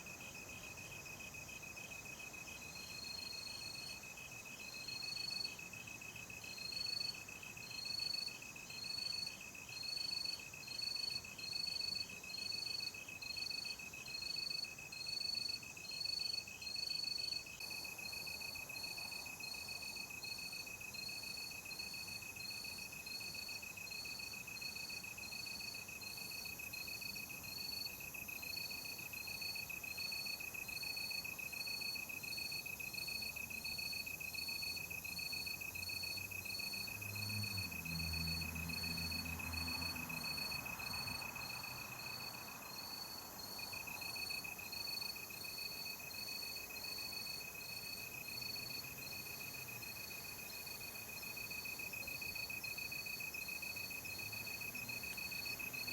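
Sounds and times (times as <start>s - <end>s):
high insect chirps: 21.0s - 55.9s.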